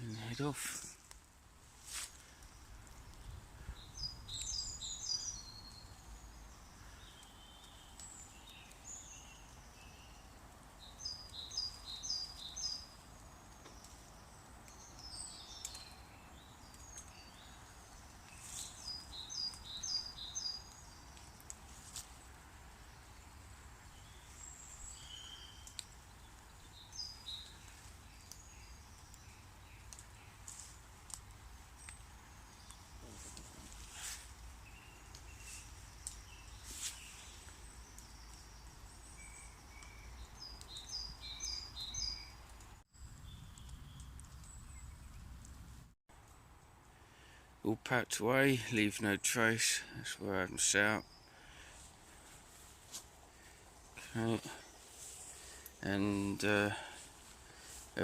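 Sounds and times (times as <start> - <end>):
faint background noise: 0.0 - 58.0
faint clicks: 25.6 - 26.5, 43.6 - 44.6.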